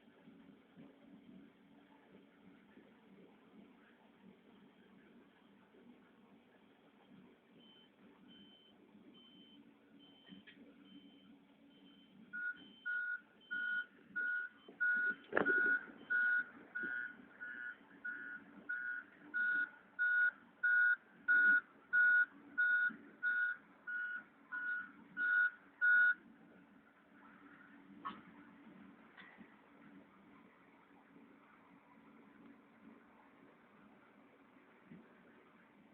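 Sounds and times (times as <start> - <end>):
reverse alarm beeping: 7.6 - 26.2
diesel engine humming: 10.8 - 35.9.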